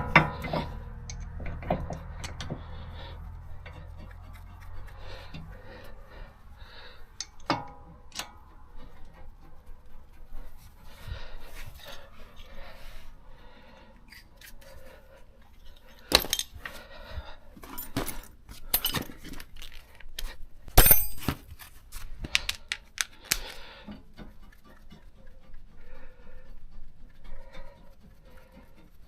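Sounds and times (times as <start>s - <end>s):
metal tools clinking and clattering: 16.1s - 16.8s, 17.6s - 19.9s, 20.8s - 21.7s.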